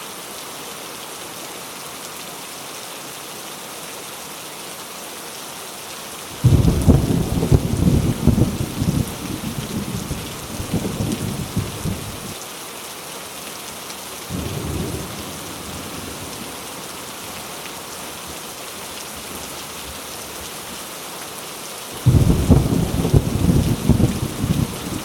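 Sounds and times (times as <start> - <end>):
heavy rain falling: 0.0 - 25.0
thunder rumbling: 6.4 - 12.4, 14.3 - 16.7, 22.0 - 25.0.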